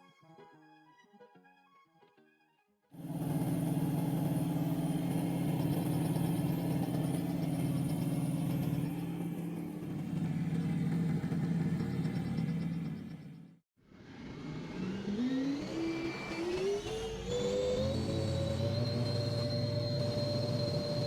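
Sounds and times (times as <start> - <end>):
engine throbbing: 3.0 - 21.0.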